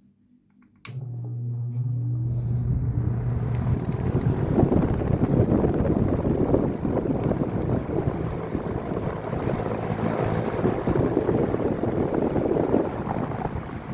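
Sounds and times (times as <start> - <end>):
fan switch click: 0.8 - 1.2
fan motor whirring: 0.9 - 13.9.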